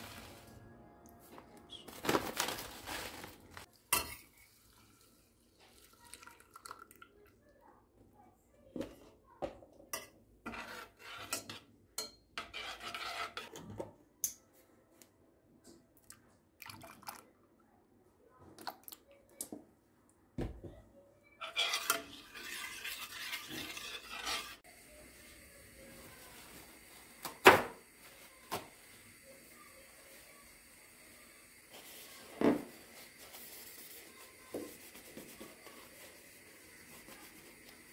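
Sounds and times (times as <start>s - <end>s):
dishes and cutlery clinking: 3.9s - 4.4s.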